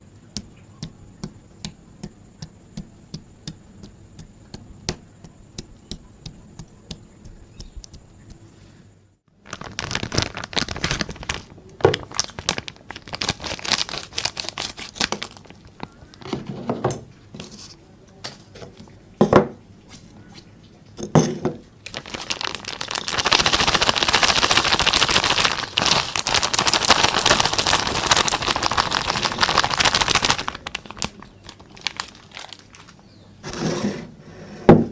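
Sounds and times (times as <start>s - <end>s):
crinkling and crackling: 9.3s - 19.0s, 21.6s - 33.6s.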